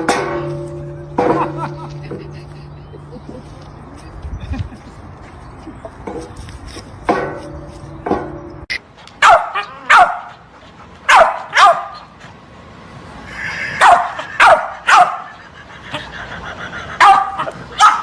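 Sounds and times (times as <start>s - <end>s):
dog barking: 9.2s - 10.3s, 11.1s - 12.0s, 13.8s - 15.3s, 17.0s - 18.0s.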